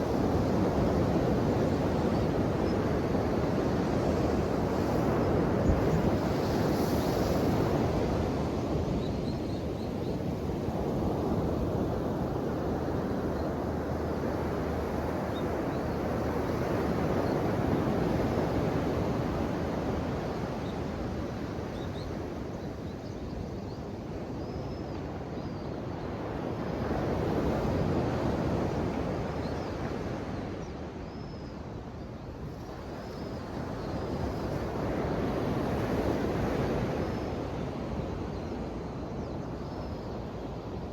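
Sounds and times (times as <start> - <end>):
ocean waves washing ashore: 32.3 - 39.2.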